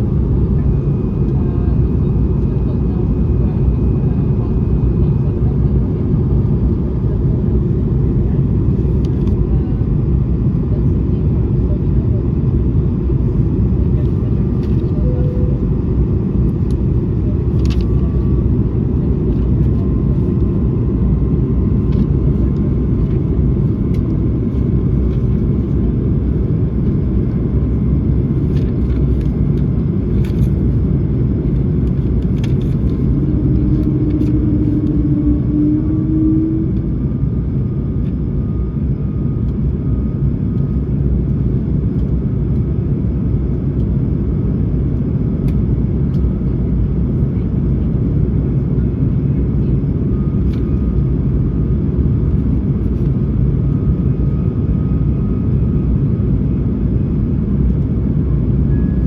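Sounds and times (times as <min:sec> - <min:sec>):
airliner cabin engine rumble: 0:00.0 - 0:59.0
brief low tone: 0:14.7 - 0:15.8.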